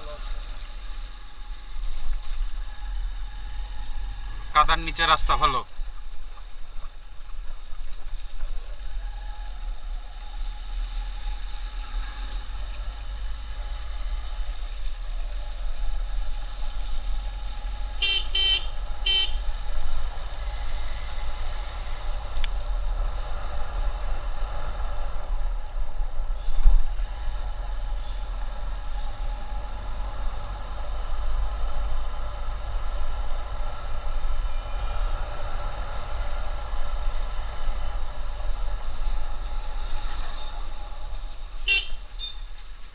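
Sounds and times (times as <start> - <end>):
wind and traffic rumble: 0.0 - 42.9
vehicle horn toots: 18.0 - 19.4, 41.6 - 42.5.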